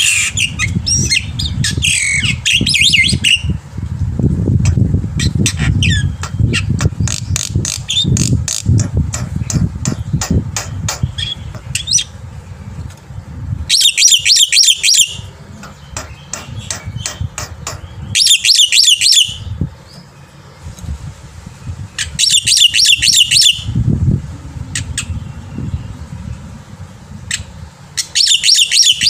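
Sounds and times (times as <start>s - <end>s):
low rumble: 0.0s - 13.7s, 23.0s - 28.0s
bird harsh rapid chattering: 4.6s - 12.1s, 13.7s - 19.3s
bird clicks and call notes: 13.7s - 19.3s.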